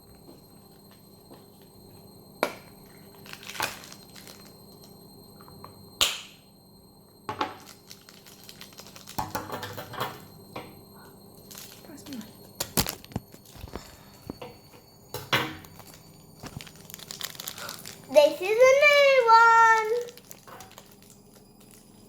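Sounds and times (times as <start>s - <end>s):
plastic packaging crinkling: 3.2s - 4.5s, 7.7s - 9.2s, 11.5s - 12.0s, 12.6s - 14.7s, 15.6s - 22.0s
plastic packaging clicks and snaps: 7.6s - 9.4s, 12.6s - 14.5s, 15.6s - 18.1s, 19.8s - 22.0s.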